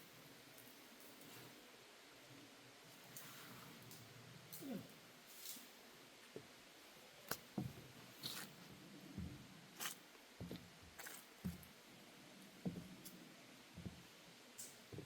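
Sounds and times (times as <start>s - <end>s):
footsteps on wooden deck: 7.5s - 8.5s, 9.2s - 11.8s, 12.6s - 13.0s, 13.8s - 14.1s.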